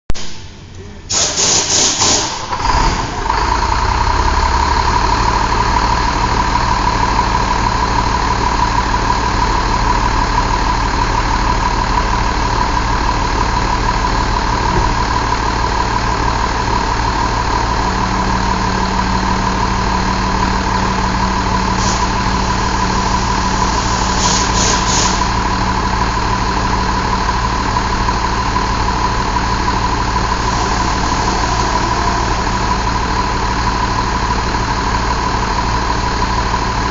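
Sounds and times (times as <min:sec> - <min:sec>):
diesel engine idling: 0:00.2 - 0:36.9
short hisses: 0:01.1 - 0:02.4, 0:23.7 - 0:25.3.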